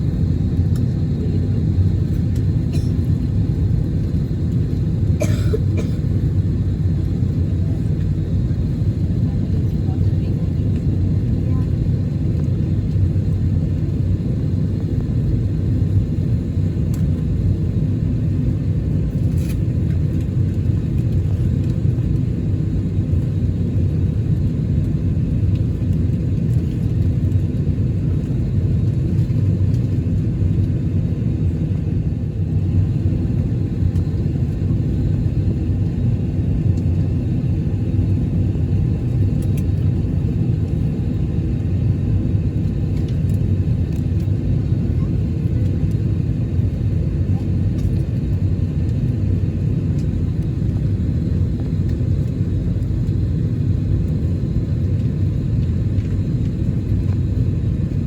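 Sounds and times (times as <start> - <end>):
low rumble in aircraft cabin: 0.0 - 58.0.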